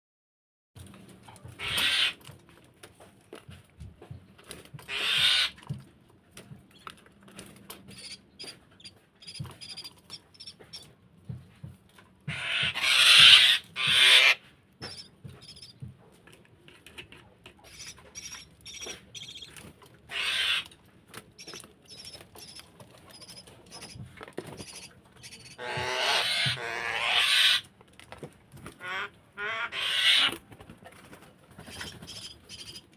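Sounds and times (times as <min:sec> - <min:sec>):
faint high peeps: 0:07.9 - 0:10.8.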